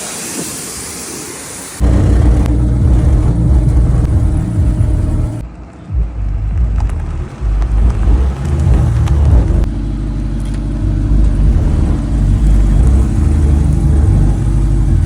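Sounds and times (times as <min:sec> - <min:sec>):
deep loud car engine running: 0:01.8 - 0:05.4, 0:06.0 - 0:15.0.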